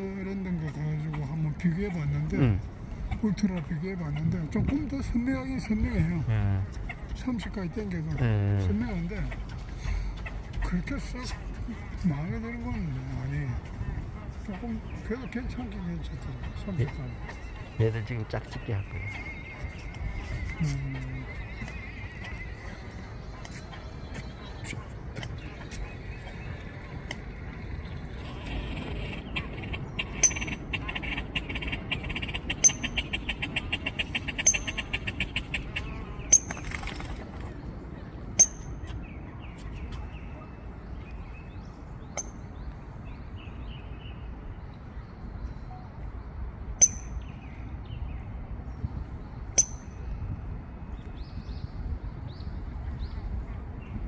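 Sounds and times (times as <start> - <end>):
grebes calling with clicking notes: 28.4 - 37.1.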